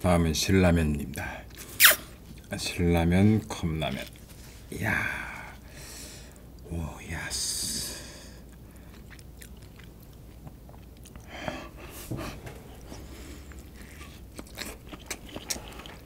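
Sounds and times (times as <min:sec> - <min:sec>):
wet mouth smacking: 0:01.8 - 0:02.1
person chewing food: 0:08.4 - 0:16.0.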